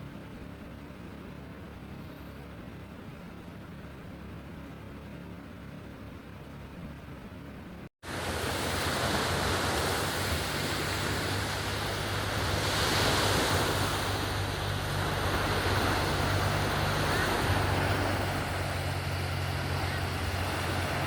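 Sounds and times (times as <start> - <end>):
sea surf washing on shore: 8.0 - 21.0
wind buffeting microphone: 8.1 - 21.0.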